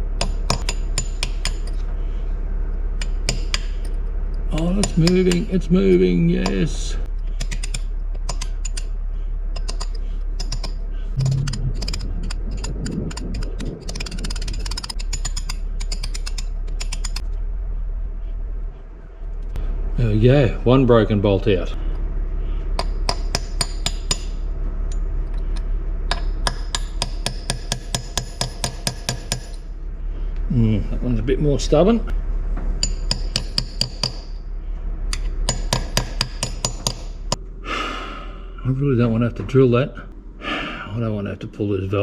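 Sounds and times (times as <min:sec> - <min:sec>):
hammer tapping metal punch: 0:03.0 - 0:03.9, 0:22.8 - 0:24.4, 0:26.1 - 0:29.6, 0:32.8 - 0:34.3, 0:35.1 - 0:37.1.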